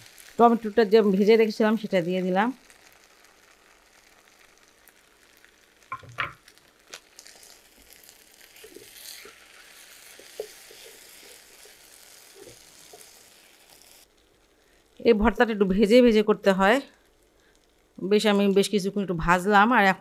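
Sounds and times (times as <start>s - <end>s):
food sizzling in a pan: 0.0s - 19.8s
spatula knocking: 5.9s - 6.4s
spatula scraping a pan: 8.4s - 14.0s.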